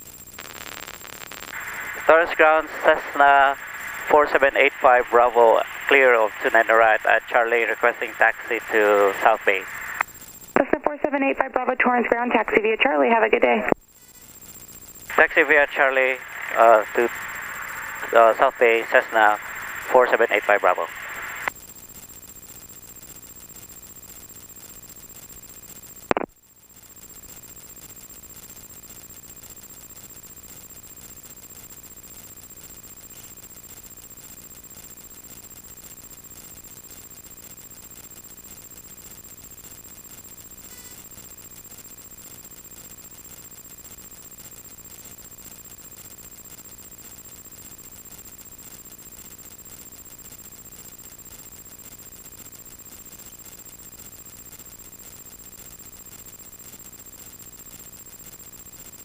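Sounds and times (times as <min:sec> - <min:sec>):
intercom hiss and electrical whine: 0:00.0 - 0:59.0
sharp click: 0:26.1 - 0:26.3.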